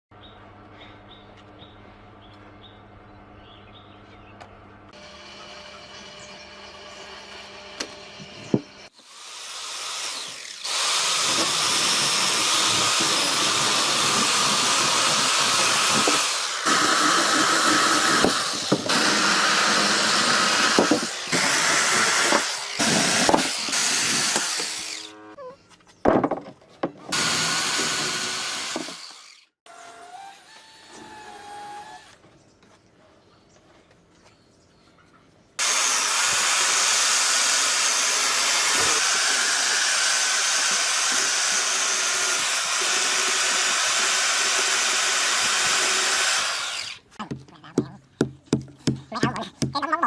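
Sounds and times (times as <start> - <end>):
power tool whining on wood: 5.0 - 25.4, 27.1 - 32.2, 35.6 - 47.2.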